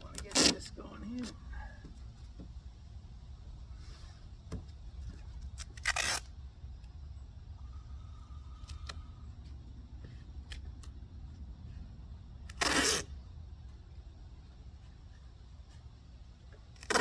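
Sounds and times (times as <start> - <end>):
tape ripping off a roll: 0.1 - 0.7, 5.3 - 6.4, 12.4 - 13.1, 16.7 - 17.0.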